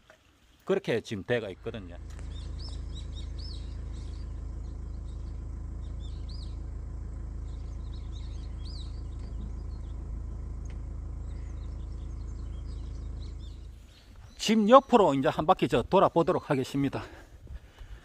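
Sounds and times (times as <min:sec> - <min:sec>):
small birds chirping: 0:00.0 - 0:18.0
steady low rumble: 0:01.5 - 0:14.4.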